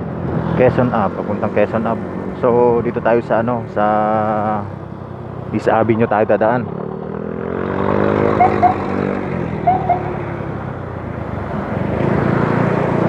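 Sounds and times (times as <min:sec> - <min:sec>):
road noise: 0:00.0 - 0:13.0
short high chirps: 0:08.4 - 0:08.9, 0:09.7 - 0:10.2.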